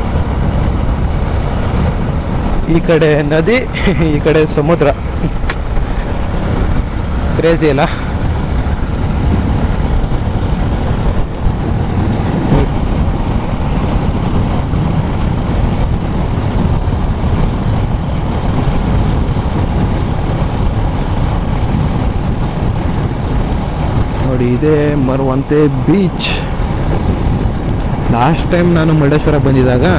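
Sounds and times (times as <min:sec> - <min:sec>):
motorcycle engine and wind rush: 0:00.0 - 0:29.9.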